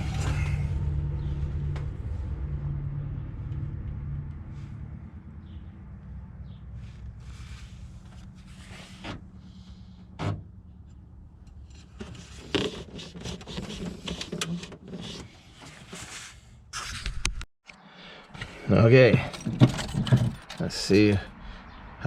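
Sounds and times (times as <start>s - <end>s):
steady low hum: 0.0s - 12.6s
handling clicks knocks and rubbing: 10.1s - 16.2s, 18.4s - 21.3s.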